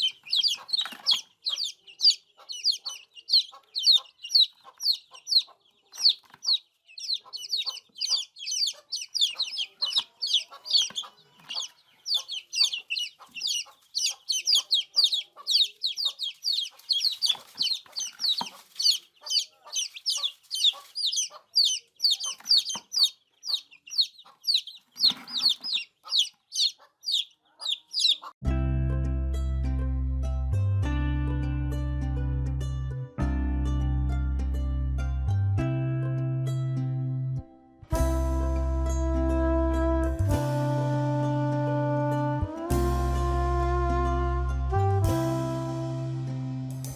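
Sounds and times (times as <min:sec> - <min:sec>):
baby chicks peeping: 0:00.0 - 0:28.4
plucked-string music: 0:28.4 - 0:46.9.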